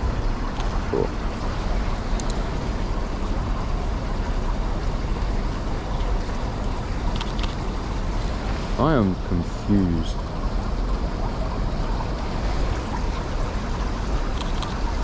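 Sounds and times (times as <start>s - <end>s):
faint clicks: 2.1s - 2.4s.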